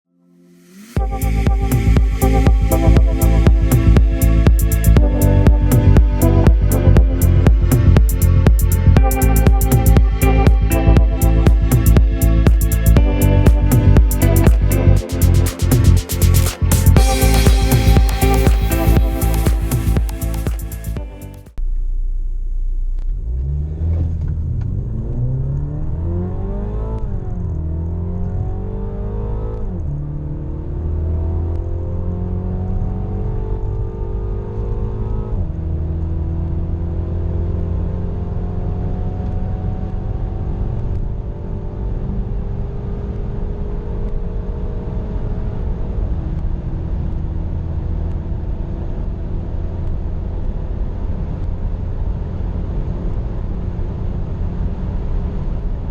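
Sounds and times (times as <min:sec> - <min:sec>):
car engine accelerating through gears: 0:23.0 - 0:55.7.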